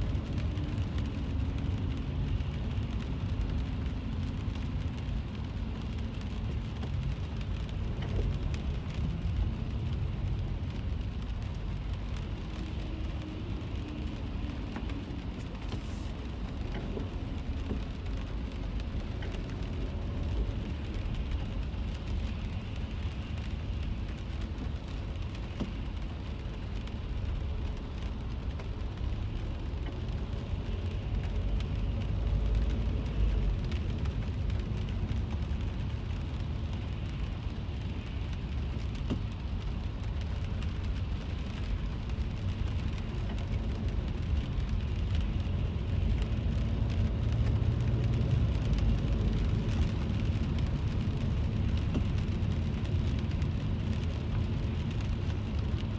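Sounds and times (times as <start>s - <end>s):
car driving rumble: 0.0s - 55.9s
rain on a car: 0.0s - 55.9s.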